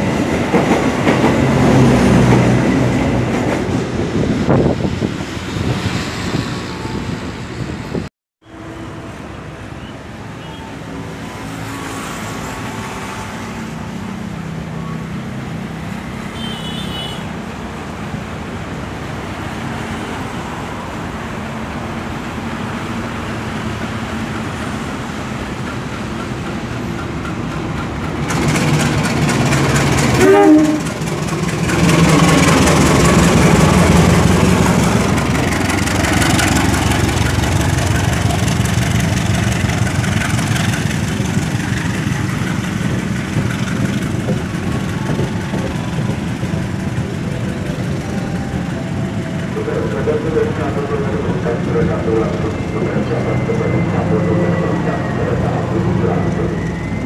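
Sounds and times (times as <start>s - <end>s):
train coaches rumbling past: 0.0s - 57.0s
locomotive engine running: 23.8s - 57.0s.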